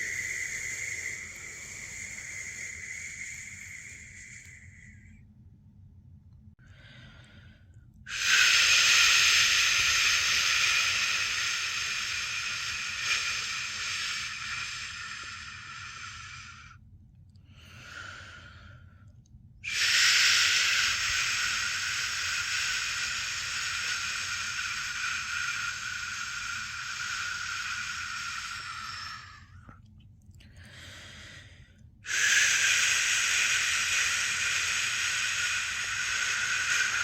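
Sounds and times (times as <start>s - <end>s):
person shushing: 19.7s - 29.5s.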